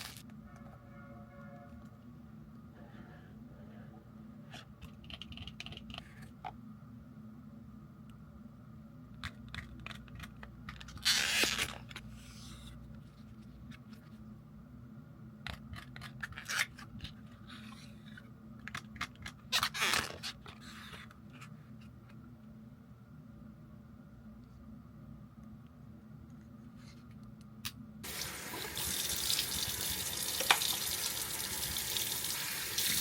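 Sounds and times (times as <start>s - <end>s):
small clicks and scrapes: 4.5s - 6.6s.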